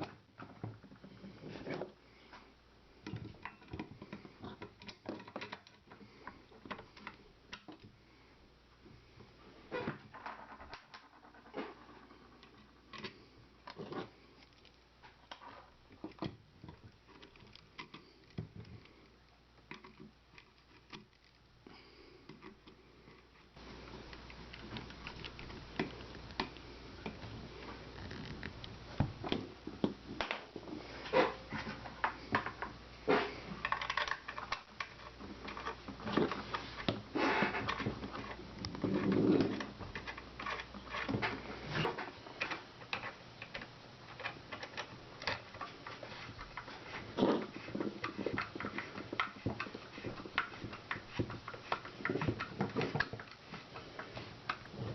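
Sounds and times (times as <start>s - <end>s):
background hiss: 0.0s - 54.9s.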